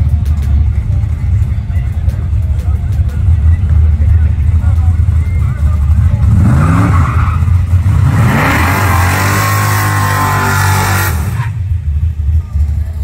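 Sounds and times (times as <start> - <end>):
tyres spinning in a burnout: 3.0 - 11.8
car engine revving high: 5.8 - 11.7.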